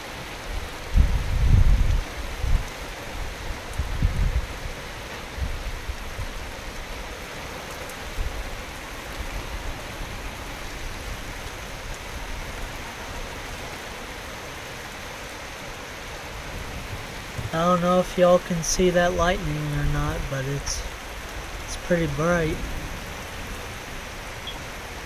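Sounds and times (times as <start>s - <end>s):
steady rain: 0.0s - 25.0s
short low thuds: 16.8s - 17.6s.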